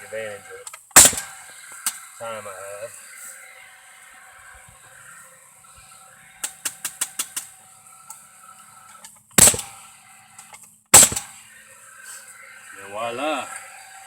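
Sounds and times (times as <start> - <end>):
nail gun bang: 0.9 - 2.0, 9.4 - 9.8, 10.9 - 11.4.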